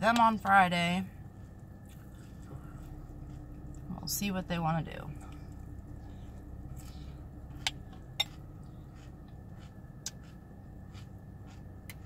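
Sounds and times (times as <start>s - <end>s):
low steady hum: 0.0s - 12.0s
chewing cereal: 1.1s - 3.9s, 5.2s - 12.0s.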